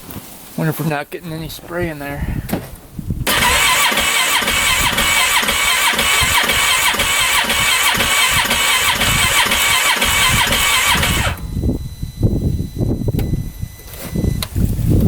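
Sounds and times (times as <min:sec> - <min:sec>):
engine cranking without starting: 0:03.2 - 0:11.6.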